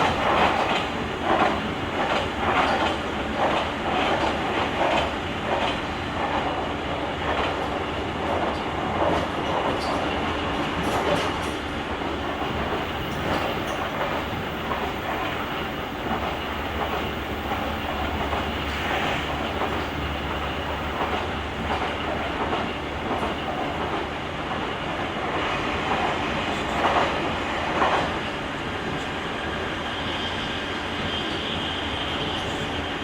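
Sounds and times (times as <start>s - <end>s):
train rolling rumble: 0.0s - 33.0s
wheels clicking over rail joints: 10.8s - 24.1s.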